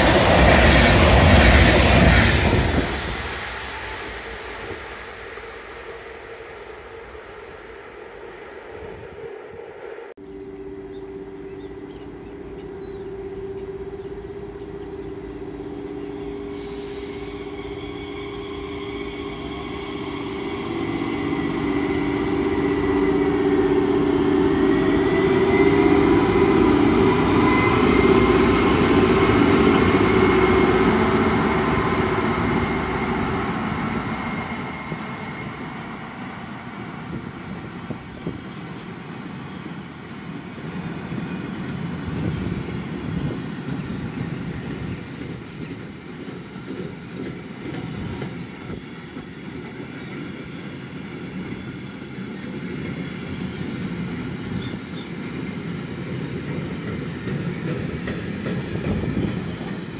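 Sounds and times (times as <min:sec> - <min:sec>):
diesel locomotive engine: 0:00.0 - 0:59.9.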